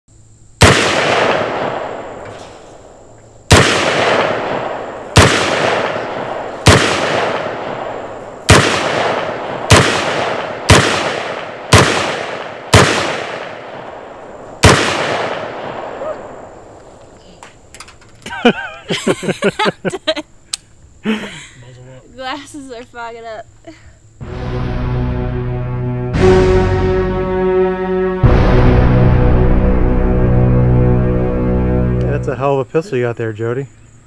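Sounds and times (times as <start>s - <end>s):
gunshots with echo: 0.6s - 2.6s, 3.5s - 16.5s.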